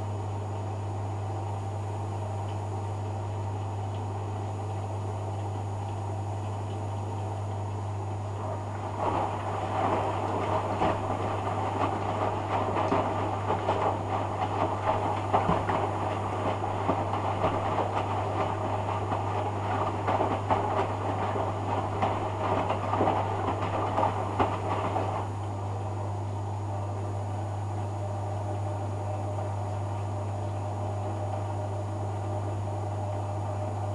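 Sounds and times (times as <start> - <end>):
washing machine hum: 0.0 - 33.9
washing machine drum tumbling laundry: 8.3 - 25.6.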